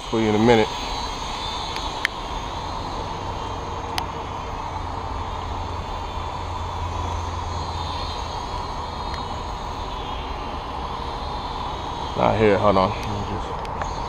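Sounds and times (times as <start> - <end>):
quadcopter motors whining: 0.0 - 14.0
rain hiss: 0.0 - 14.0
sharp tick: 0.8 - 2.7, 3.8 - 4.2, 7.8 - 9.4, 12.9 - 14.0.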